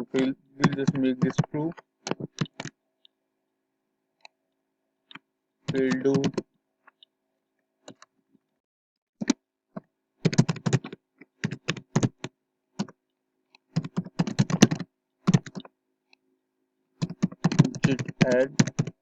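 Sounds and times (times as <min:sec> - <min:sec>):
typing on computer keyboard: 0:00.6 - 0:02.8, 0:05.7 - 0:06.4, 0:10.2 - 0:13.0, 0:13.7 - 0:15.7, 0:17.0 - 0:19.0.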